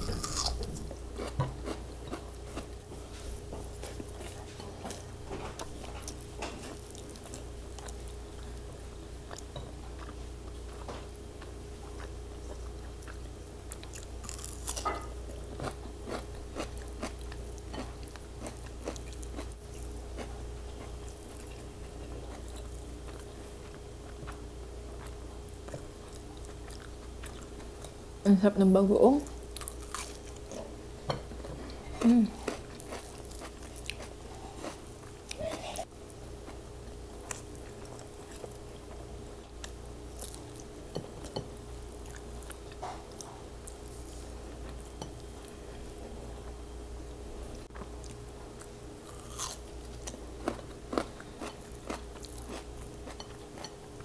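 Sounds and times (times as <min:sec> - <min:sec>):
biting and chewing a raw tomato: 0:00.0 - 0:08.6, 0:09.3 - 0:24.4, 0:37.2 - 0:45.9, 0:47.7 - 0:53.8
faint steady hum: 0:00.0 - 0:54.0.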